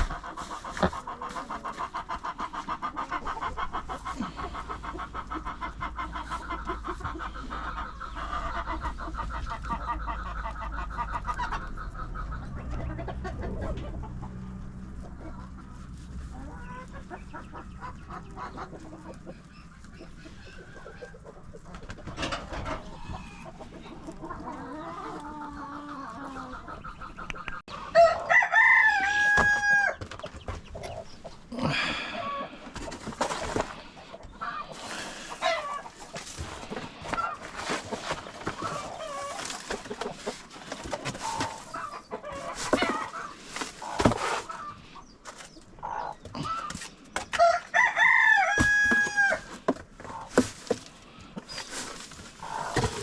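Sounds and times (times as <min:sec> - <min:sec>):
hens clucking: 0:00.0 - 0:53.0
rooster crowing: 0:27.9 - 0:30.0, 0:47.4 - 0:49.5.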